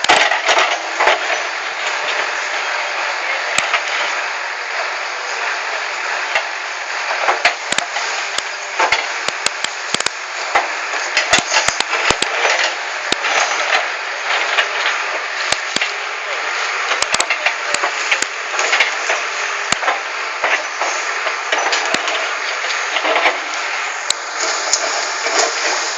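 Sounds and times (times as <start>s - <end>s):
rock and soil knocking and crunching: 0.0s - 2.2s, 7.1s - 16.0s, 16.8s - 25.9s
backhoe loader working: 0.0s - 25.9s.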